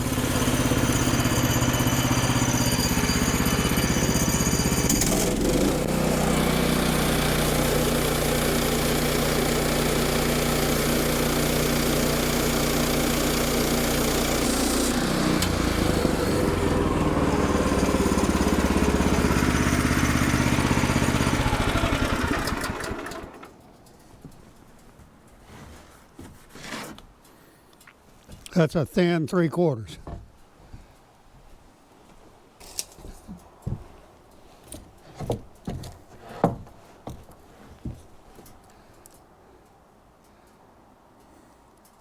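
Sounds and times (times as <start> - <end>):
sawmill gasoline engine running: 0.0 - 23.6.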